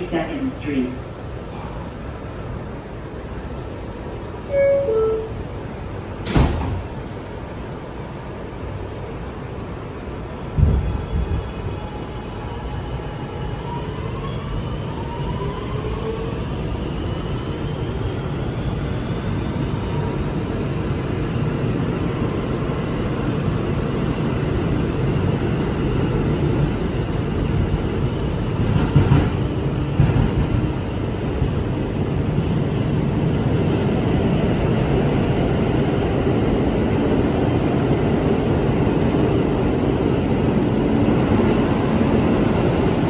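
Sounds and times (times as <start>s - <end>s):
train wheels rumbling on rail: 0.0s - 43.0s
train propulsion whine: 4.3s - 6.2s.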